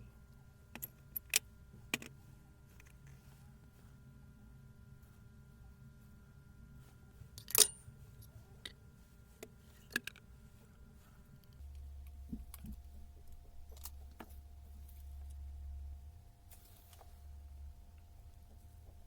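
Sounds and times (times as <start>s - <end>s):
steady low hum: 0.0s - 19.0s
metal parts clicking and clinking: 0.7s - 2.1s, 7.4s - 7.8s, 12.5s - 14.4s.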